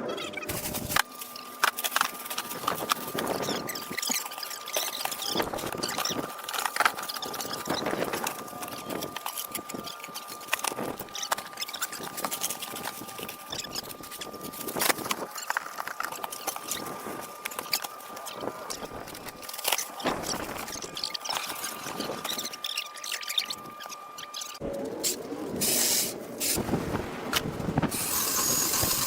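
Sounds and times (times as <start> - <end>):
faint high whine: 0.0 - 29.0
crackling and rustling: 0.4 - 25.8.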